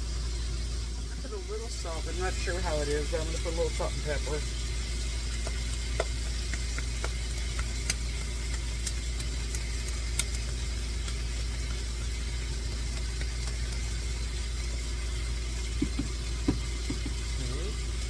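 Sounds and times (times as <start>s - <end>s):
food sizzling in a frying pan: 0.0s - 18.0s
steady low hum: 0.0s - 18.0s
sharp pops of oil: 5.2s - 14.0s, 15.6s - 17.2s.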